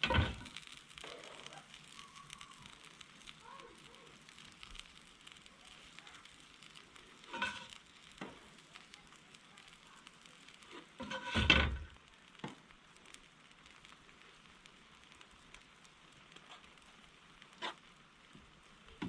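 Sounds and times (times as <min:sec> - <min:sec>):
food sizzling in a frying pan: 0:00.0 - 0:19.0
utensil scraping a pan: 0:07.3 - 0:07.8, 0:10.7 - 0:11.8, 0:17.5 - 0:17.9.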